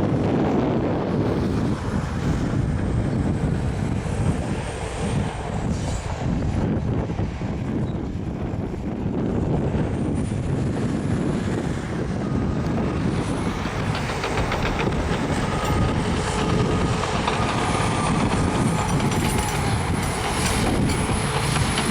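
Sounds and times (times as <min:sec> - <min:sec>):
bulldozer diesel engine: 0:00.0 - 0:21.9
steel tracks clanking: 0:10.8 - 0:21.9.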